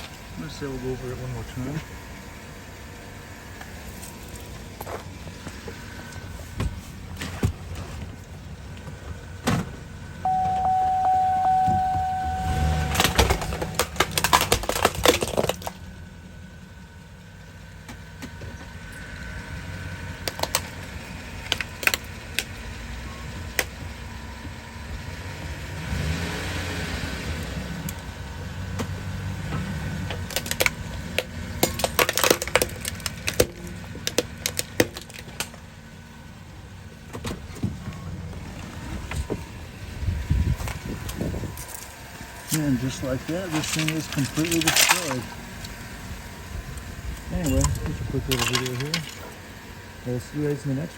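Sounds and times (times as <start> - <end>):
truck engine running: 0.0 - 50.9
steady beeping tone: 10.2 - 13.8
space heater cracking and crunching: 13.0 - 16.0, 20.2 - 22.6, 30.1 - 35.7, 40.7 - 49.6.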